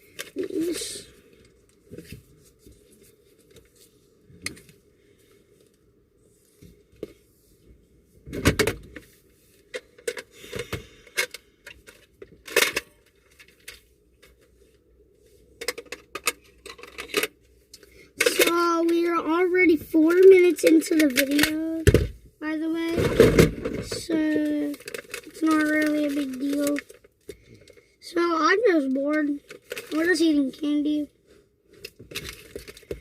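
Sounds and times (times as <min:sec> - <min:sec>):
small hard objects clicking and rattling: 0:24.0 - 0:27.8.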